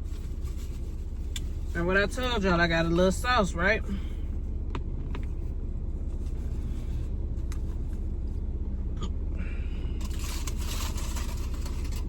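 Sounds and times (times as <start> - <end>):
car engine idling: 0.0 - 12.0
food packaging rustling: 10.0 - 12.0.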